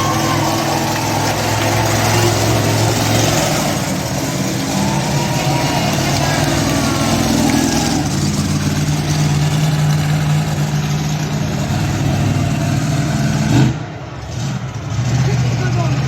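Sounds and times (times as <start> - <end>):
truck engine running: 0.0 - 16.0.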